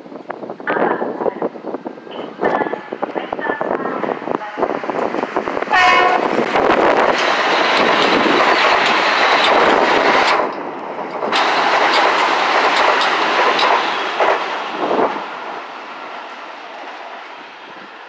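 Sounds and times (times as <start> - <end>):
train rushing past: 2.4 - 18.0
train horn blast: 5.7 - 6.4
wheels clicking over rail joints: 7.1 - 14.6.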